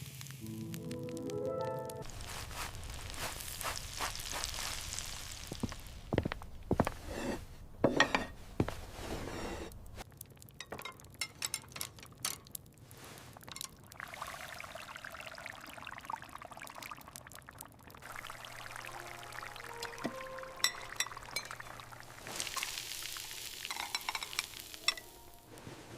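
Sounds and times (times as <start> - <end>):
liquid pouring: 10.0 - 25.5.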